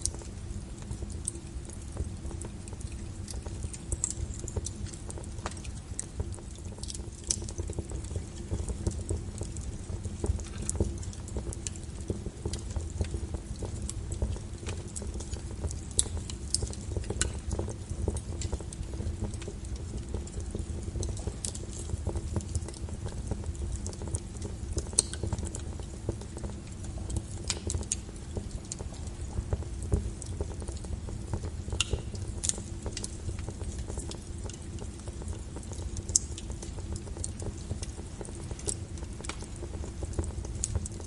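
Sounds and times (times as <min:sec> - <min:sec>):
log fire crackling and popping: 0:00.0 - 0:41.0.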